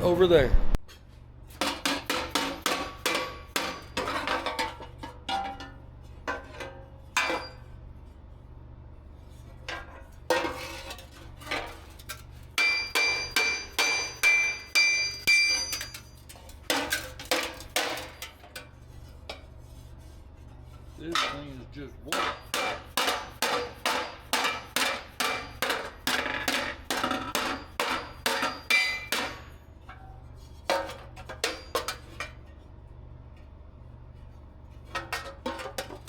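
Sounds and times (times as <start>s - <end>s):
hammer striking metal: 1.6s - 4.2s, 12.6s - 16.2s, 22.1s - 29.6s, 30.8s - 32.1s.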